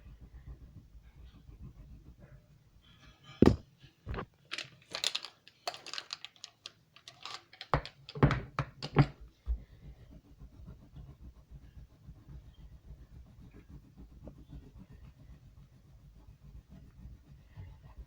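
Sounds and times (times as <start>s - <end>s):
scratchy clatter: 2.9s - 9.2s
colouring tools knocking and clicking: 3.4s - 9.2s.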